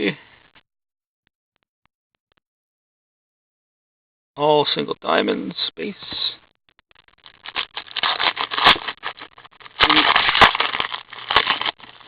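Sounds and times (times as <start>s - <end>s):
card wrappers crinkling: 6.9s - 12.0s.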